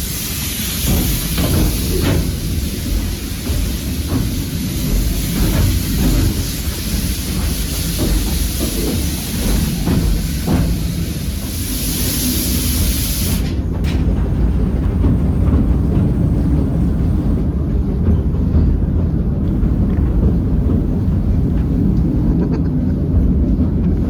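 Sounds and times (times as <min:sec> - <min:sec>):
loud steam hiss: 0:00.0 - 0:17.4
train rumbling on rails: 0:00.0 - 0:24.0.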